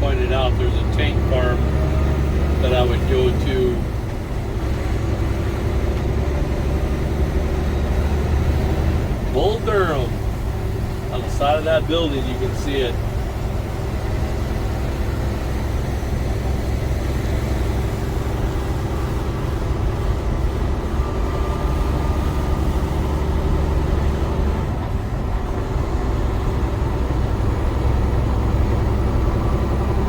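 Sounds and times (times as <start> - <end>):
road noise: 0.0 - 30.0
truck diesel engine droning: 0.0 - 30.0.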